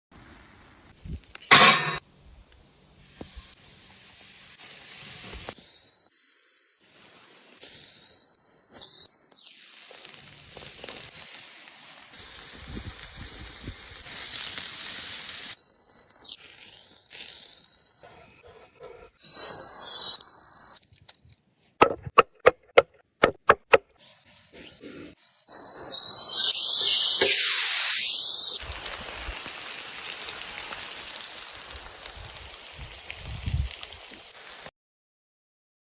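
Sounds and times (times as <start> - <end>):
meat sizzling over open fire: 3.0 - 18.1, 19.2 - 20.8, 25.2 - 34.7.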